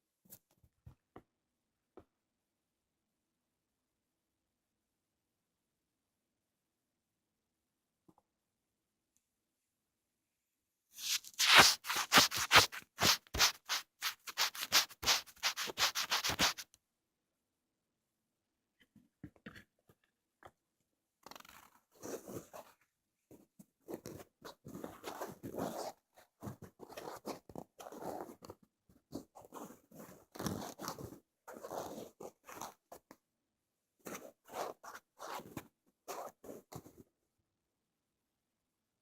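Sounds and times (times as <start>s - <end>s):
crackly scratching on microphone: 11.0s - 16.6s, 29.2s - 33.1s, 34.0s - 37.0s.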